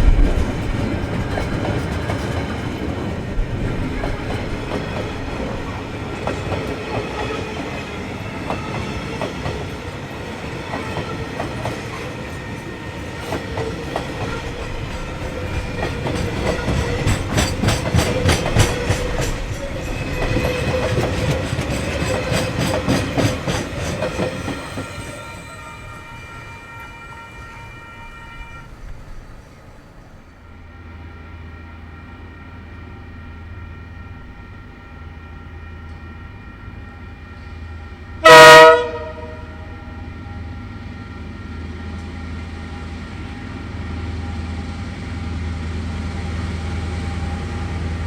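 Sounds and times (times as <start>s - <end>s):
wheels clacking over rail joints: 0.0s - 25.2s
ringing train wheels: 0.0s - 48.0s.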